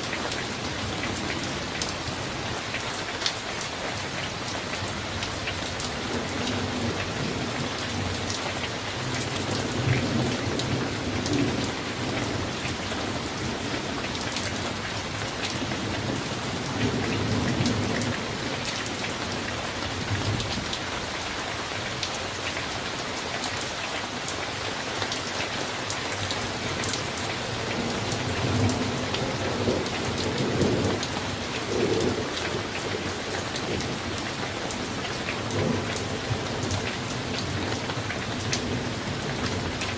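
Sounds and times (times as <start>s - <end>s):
steady rain falling: 0.0s - 39.9s
low thunder rumbling: 27.6s - 34.2s.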